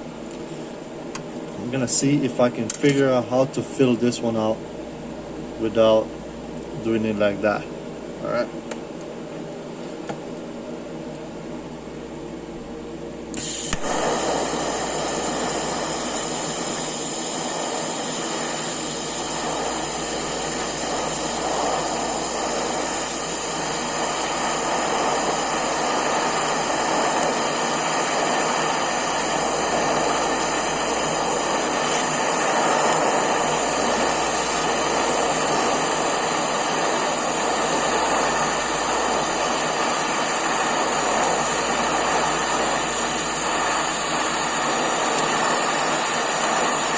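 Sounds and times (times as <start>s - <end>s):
welding arc hiss: 13.3s - 46.9s
welding machine hum: 13.3s - 46.9s.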